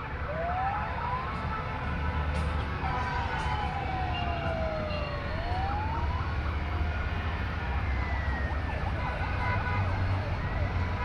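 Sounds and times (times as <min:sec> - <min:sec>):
siren wailing: 0:00.3 - 0:01.3, 0:02.8 - 0:09.4.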